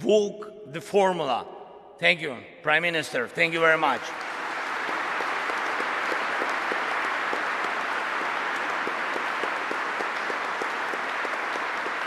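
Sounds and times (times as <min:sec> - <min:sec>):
large audience applauding: 0:03.6 - 0:12.0.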